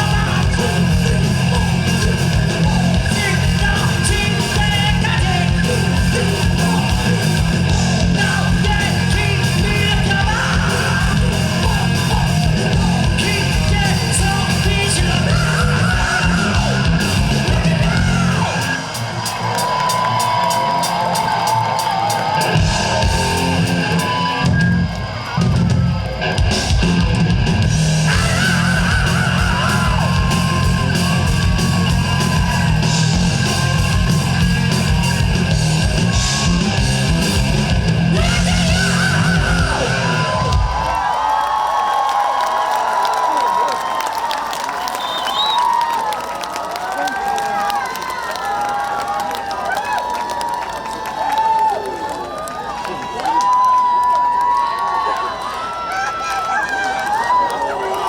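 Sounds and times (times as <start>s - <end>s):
high strained vocals: 0.0s - 19.2s, 27.7s - 41.1s
heavy metal band playing: 0.0s - 41.1s.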